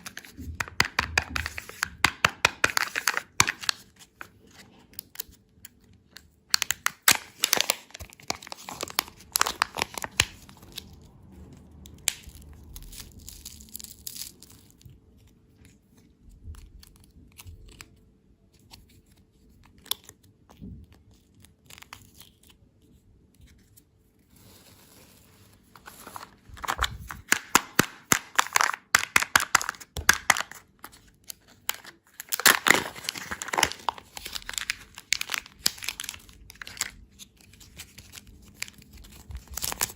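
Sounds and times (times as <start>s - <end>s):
candy wrapper crinkling and tearing: 0.0s - 39.9s.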